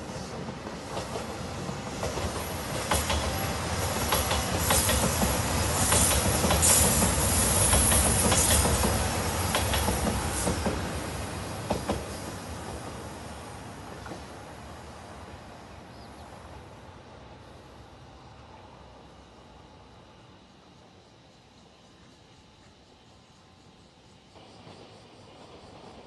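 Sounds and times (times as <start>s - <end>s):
diesel train passing: 0.0s - 26.0s
high hiss: 0.0s - 26.0s
wheels clicking over rail joints: 4.0s - 11.0s.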